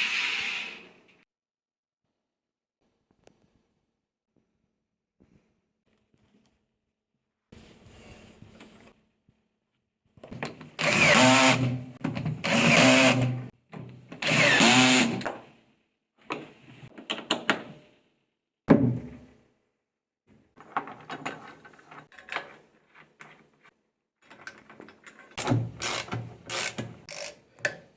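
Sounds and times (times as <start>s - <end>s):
power drill running: 10.8s - 11.8s, 12.4s - 13.4s, 14.2s - 15.2s, 25.8s - 27.3s.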